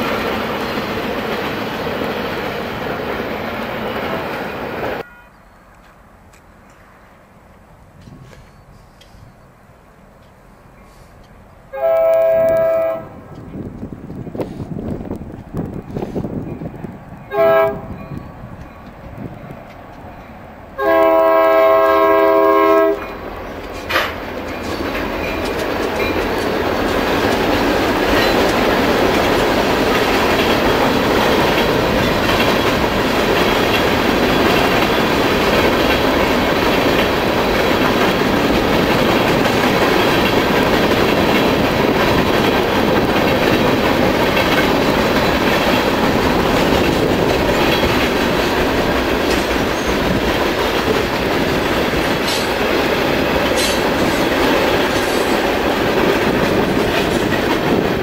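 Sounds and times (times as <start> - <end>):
locomotive horn blast: 4.9 - 5.4, 11.7 - 13.2, 17.3 - 18.0, 20.8 - 23.1
freight car wheels rolling on rails: 23.5 - 58.0.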